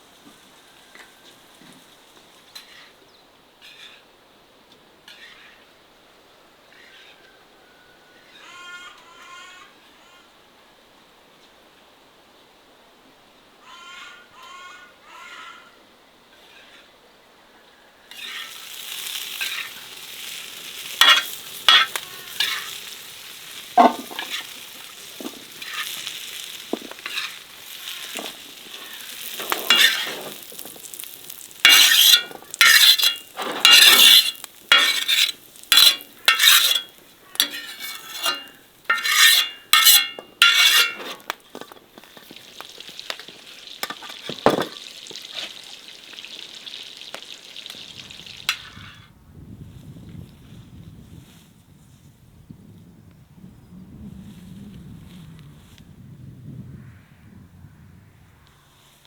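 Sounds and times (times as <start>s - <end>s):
food sizzling in hot oil: 18.1s - 41.4s, 42.0s - 49.0s
utensil scraping and clinking pot: 18.1s - 45.6s, 48.5s - 49.0s.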